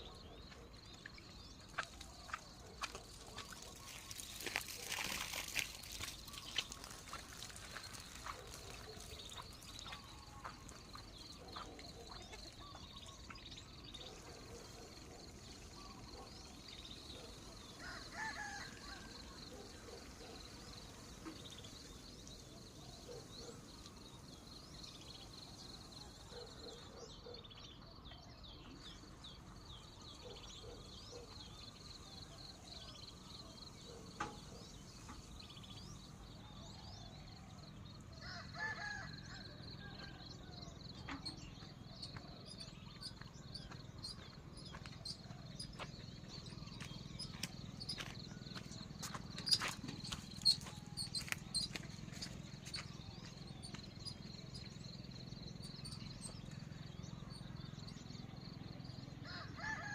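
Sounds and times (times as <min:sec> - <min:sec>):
birds calling: 0:00.0 - 0:24.5, 0:40.7 - 0:58.0.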